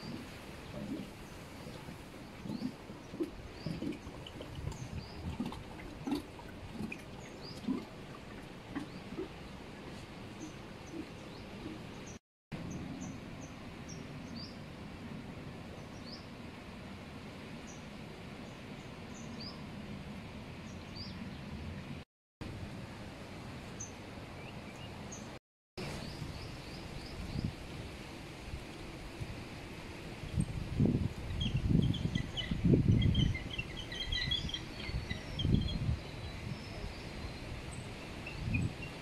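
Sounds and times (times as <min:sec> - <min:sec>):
outdoor background noise: 0:00.0 - 0:39.0
small birds chirping: 0:31.4 - 0:38.8.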